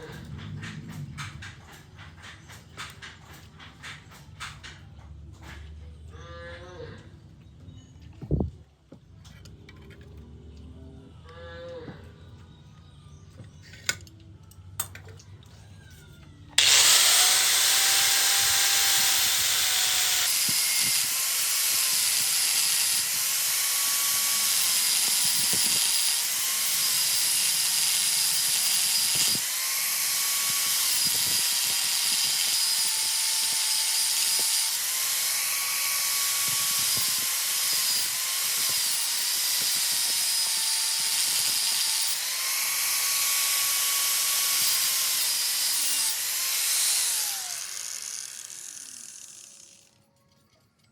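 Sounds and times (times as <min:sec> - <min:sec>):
power tool whine: 0:16.6 - 0:50.0.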